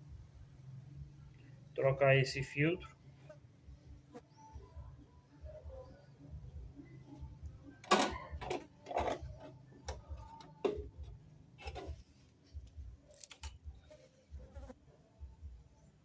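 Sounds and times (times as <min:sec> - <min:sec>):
low steady hum: 0:00.0 - 0:16.0
tools clicking and knocking: 0:07.8 - 0:12.0.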